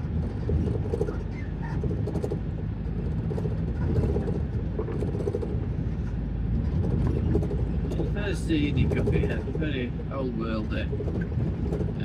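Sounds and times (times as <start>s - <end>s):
lorry engine and road rumble: 0.0s - 12.0s.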